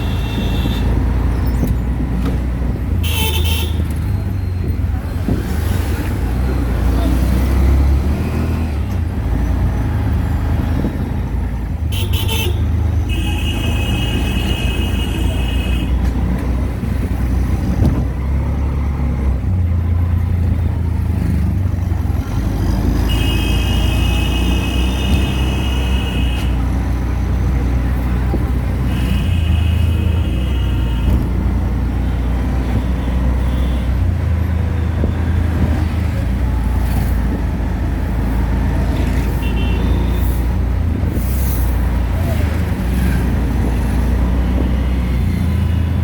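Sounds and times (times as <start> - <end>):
vehicle horn: 0.0 - 1.0, 11.9 - 16.0, 23.0 - 26.6, 28.8 - 31.3, 39.3 - 40.4
auto-rickshaw engine running: 0.0 - 46.0
road noise: 0.0 - 46.0.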